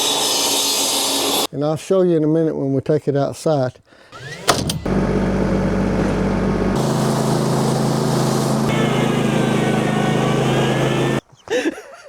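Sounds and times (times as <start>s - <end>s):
small gas engine running: 4.1s - 11.2s.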